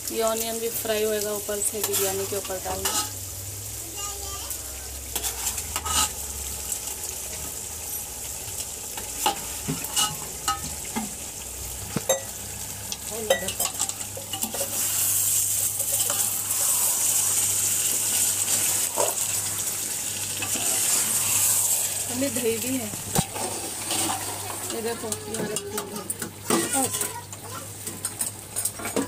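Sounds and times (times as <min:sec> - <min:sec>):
frying sizzle: 0:00.0 - 0:29.0
metal spoon scraping a metal pot: 0:01.8 - 0:03.2, 0:05.1 - 0:06.2, 0:09.2 - 0:10.6, 0:13.3 - 0:17.2, 0:23.2 - 0:25.6.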